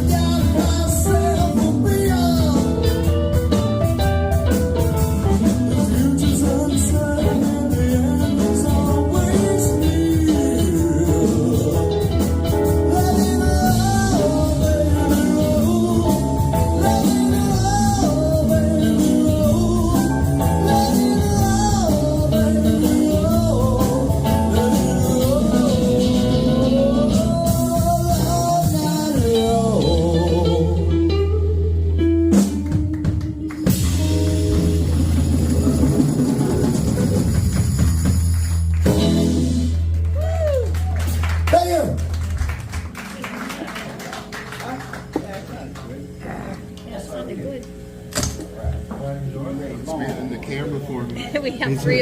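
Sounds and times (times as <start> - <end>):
guitar bending notes: 0.0 - 37.9, 38.6 - 40.2
live blues band: 0.0 - 45.5.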